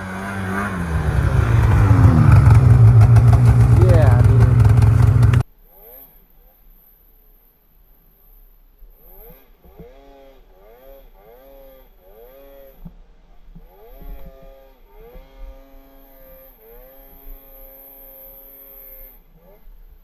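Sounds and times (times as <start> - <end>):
snowmobile engine revving: 0.0 - 5.4.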